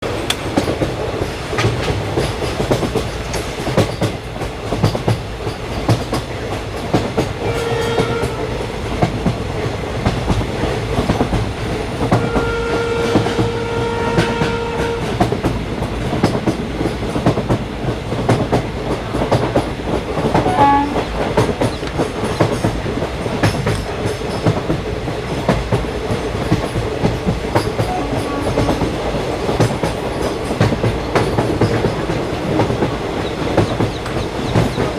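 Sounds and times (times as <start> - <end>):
train rumbling on rails: 0.0 - 34.9
wheels clacking over rail joints: 0.0 - 34.9
train horn: 7.4 - 8.8, 12.1 - 15.3, 20.3 - 21.1, 27.8 - 29.0.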